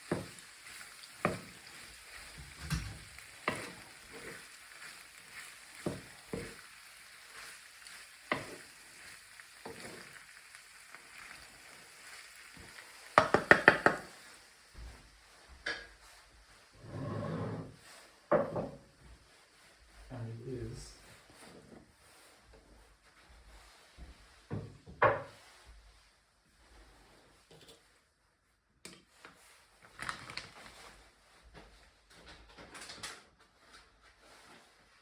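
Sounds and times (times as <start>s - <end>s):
utensil scraping a pan: 0.0s - 14.5s, 15.7s - 18.8s
vegetables sizzling in a pan: 0.0s - 17.0s, 17.6s - 27.8s
loud clattering taps on pan: 13.2s - 14.1s.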